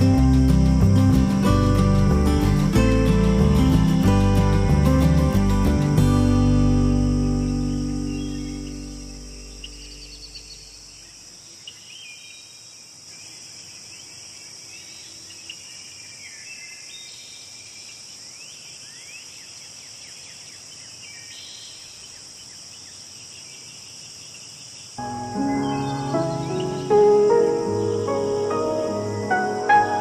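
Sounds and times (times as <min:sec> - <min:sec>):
background music: 0:00.0 - 0:10.0, 0:25.0 - 0:30.0
high-pitched insect chorus: 0:00.0 - 0:30.0
bird chirps and trills: 0:06.4 - 0:12.5, 0:25.0 - 0:30.0.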